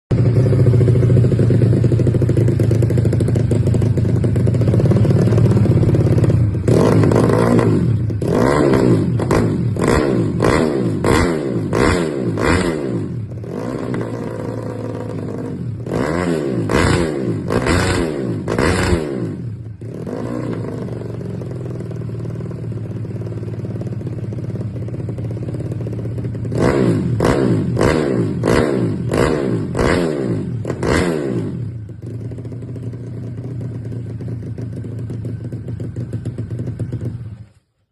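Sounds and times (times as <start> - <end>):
motorcycle engine idling and revving: 0.1 - 37.9.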